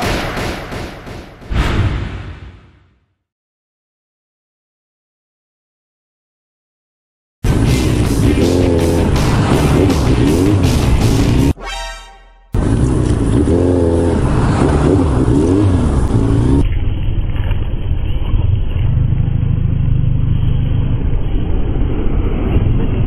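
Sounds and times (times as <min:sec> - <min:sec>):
motorcycle engine revving: 0:07.4 - 0:11.6, 0:12.6 - 0:16.7.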